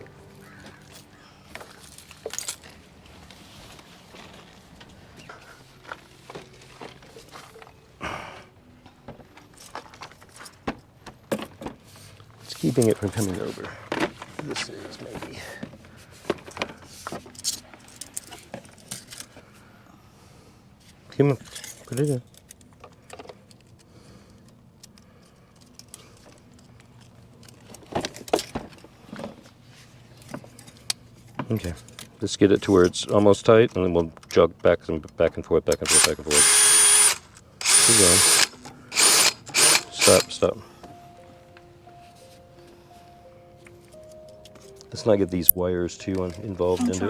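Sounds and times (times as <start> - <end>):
rustling scrape: 2.1 - 7.6, 11.8 - 17.8.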